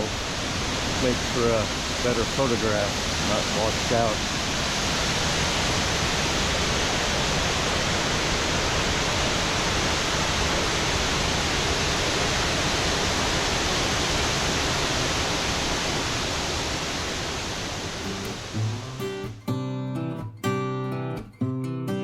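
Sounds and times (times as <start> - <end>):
waterfall rushing: 0.0 - 19.4.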